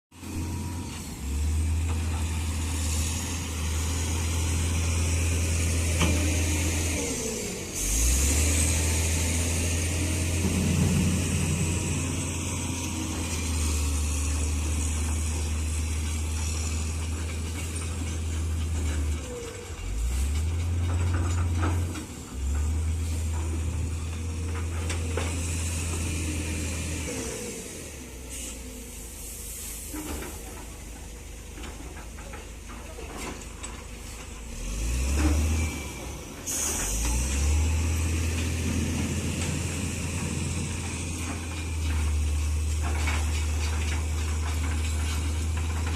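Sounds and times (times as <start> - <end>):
excavator diesel engine: 0.1 - 45.9
clatter: 14.7 - 26.1, 38.3 - 45.9
hydraulic hiss: 28.3 - 30.4.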